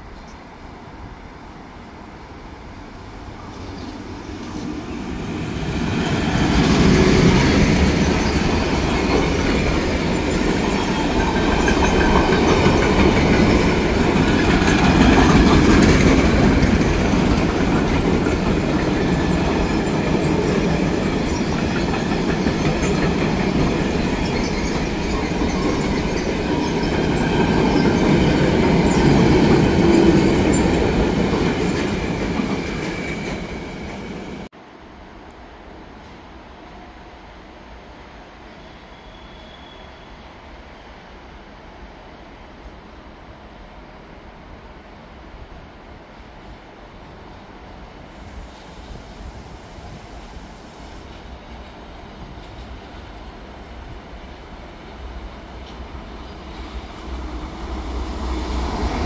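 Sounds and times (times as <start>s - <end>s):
train wheels rumbling on rails: 3.0s - 34.5s, 48.0s - 59.0s.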